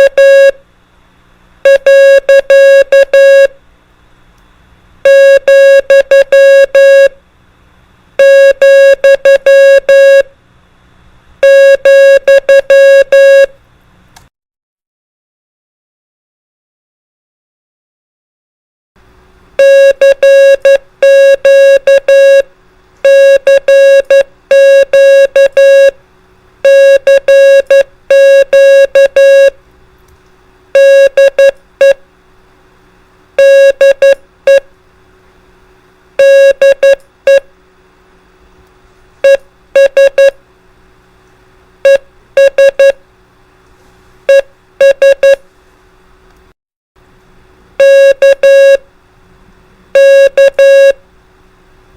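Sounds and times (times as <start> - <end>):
morse code beeps: 0.0 - 0.6, 1.7 - 3.5, 5.1 - 7.1, 8.2 - 10.3, 11.4 - 13.5, 19.6 - 22.5, 23.1 - 26.0, 26.6 - 29.6, 30.8 - 32.0, 33.4 - 34.6, 36.2 - 37.4, 39.2 - 40.4, 41.8 - 43.0, 44.3 - 45.4, 47.8 - 48.8, 50.0 - 51.0.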